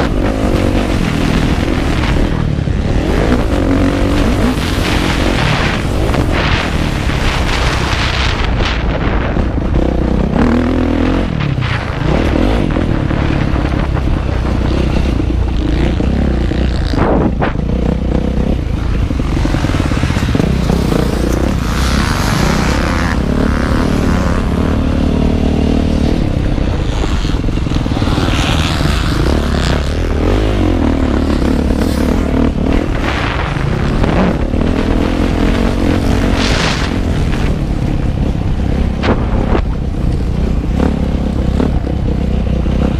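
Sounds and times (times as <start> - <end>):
motocross engine revving: 0.0 - 42.9
wind rushing over microphone: 0.0 - 42.9.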